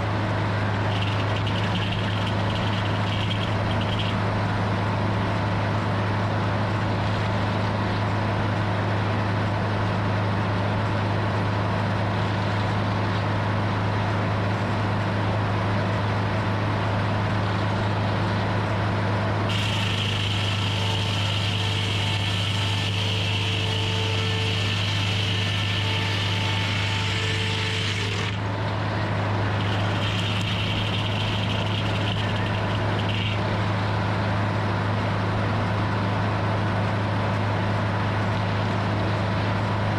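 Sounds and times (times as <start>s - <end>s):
sawmill motor humming: 0.0s - 7.9s, 16.6s - 34.6s
saw cutting timber with whine: 0.0s - 8.0s, 19.5s - 34.5s.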